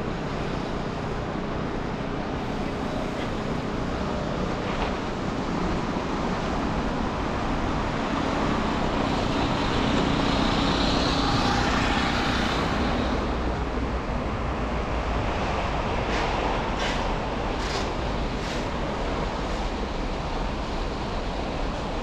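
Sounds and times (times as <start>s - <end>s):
tyre and engine road noise: 0.0s - 22.0s.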